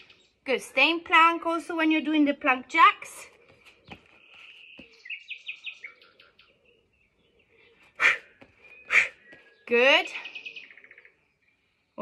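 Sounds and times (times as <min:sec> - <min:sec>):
small bird singing: 0:00.0 - 0:01.0, 0:03.3 - 0:12.0.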